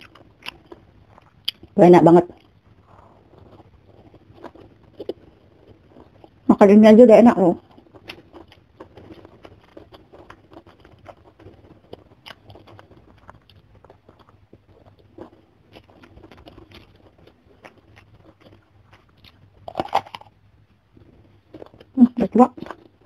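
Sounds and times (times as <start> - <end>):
chewing with wet clicks: 0.0 - 2.6, 7.6 - 20.4
crisp crunches: 7.8 - 20.4.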